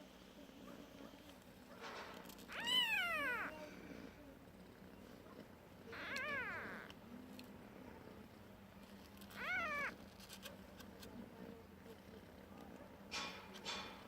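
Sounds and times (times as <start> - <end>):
kitten mewing: 2.5 - 3.6, 5.9 - 7.0, 9.3 - 10.0.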